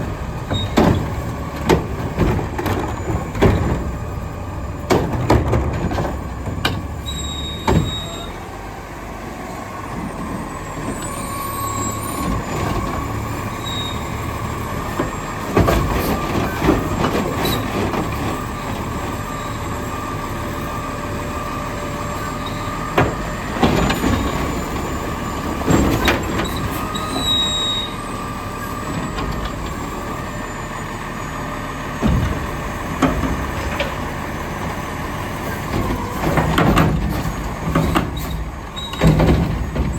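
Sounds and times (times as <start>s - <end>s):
garbage truck engine whine: 0.0s - 39.9s
metal bangs and clanks: 35.4s - 39.9s.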